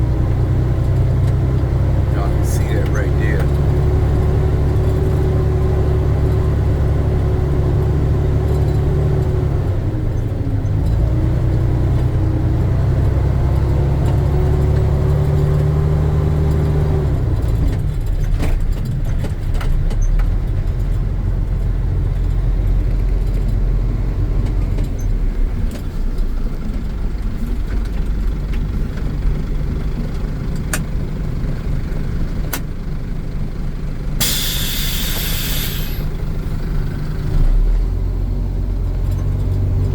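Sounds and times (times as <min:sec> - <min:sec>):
dump truck engine running: 0:00.0 - 0:39.9
short sharp hiss: 0:34.2 - 0:36.2.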